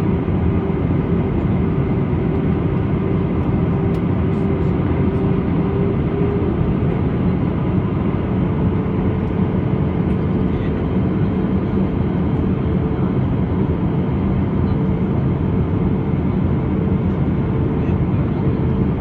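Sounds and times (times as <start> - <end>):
jet engines droning: 0.0 - 19.0.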